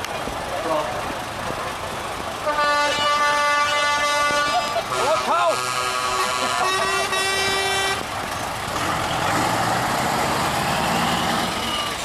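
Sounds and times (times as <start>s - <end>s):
truck engine running: 0.0s - 12.0s
truck air horn blast: 2.4s - 8.0s.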